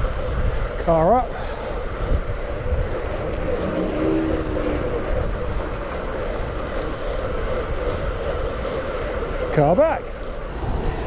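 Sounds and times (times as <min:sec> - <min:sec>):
wind and road noise: 0:00.0 - 0:11.0
low rumble: 0:01.8 - 0:08.8.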